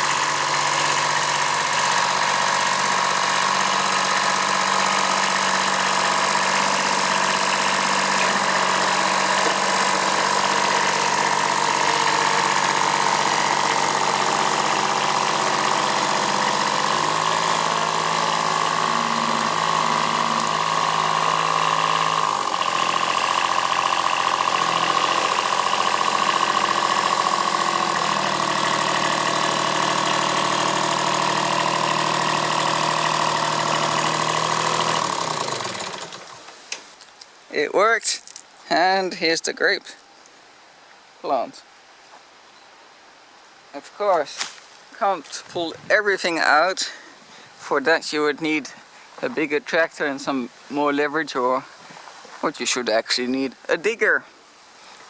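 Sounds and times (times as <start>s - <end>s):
steady whine: 0.0s - 31.6s
diesel tractor engine running: 0.0s - 36.7s.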